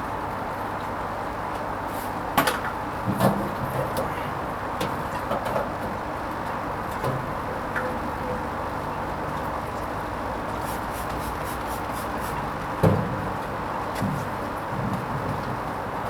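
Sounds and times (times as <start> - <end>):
washing machine low thump: 12.8 - 13.3.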